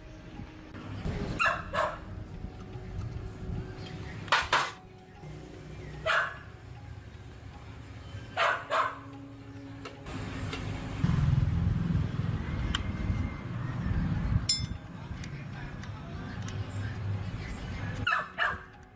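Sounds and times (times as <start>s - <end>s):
dog barking: 1.4s - 2.1s, 6.0s - 6.5s, 8.4s - 9.1s, 18.0s - 18.7s.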